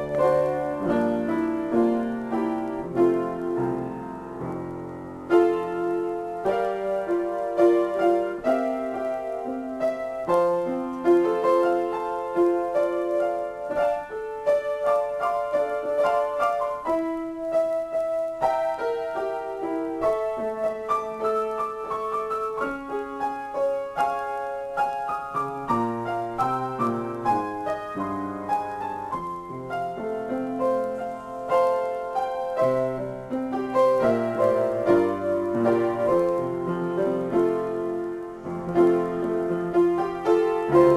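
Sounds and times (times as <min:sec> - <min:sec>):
solo piano playing chords: 0:00.0 - 0:40.9.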